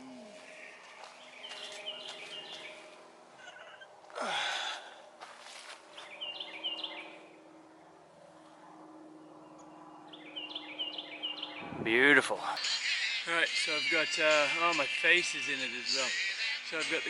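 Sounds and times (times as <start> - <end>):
songbird chirping: 0.0 - 3.9, 5.2 - 11.8
faint outdoor background noise: 0.0 - 17.0.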